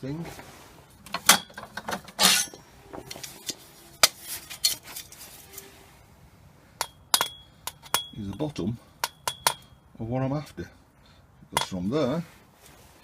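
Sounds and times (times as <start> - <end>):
scraping rustle: 0.0 - 1.0, 1.9 - 6.1, 12.0 - 13.0
metal objects clinking: 1.3 - 5.6.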